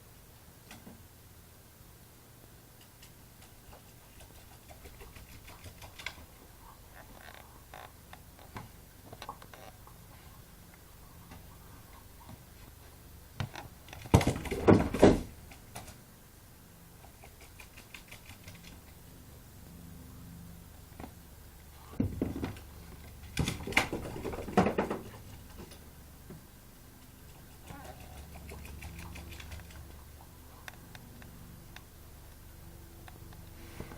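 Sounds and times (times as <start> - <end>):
loud knocks and clatter: 14.0 - 15.3, 23.3 - 25.2.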